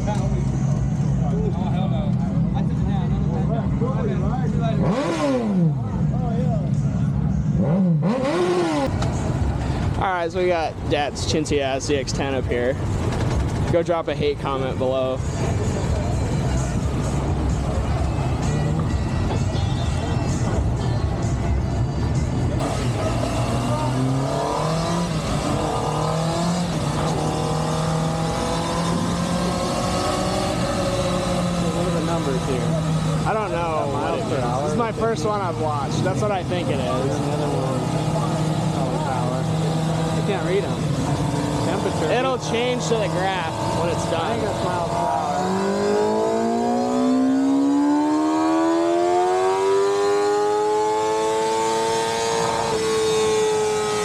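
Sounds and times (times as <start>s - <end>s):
motorcycle engine revving: 2.1s - 10.0s, 22.1s - 54.0s.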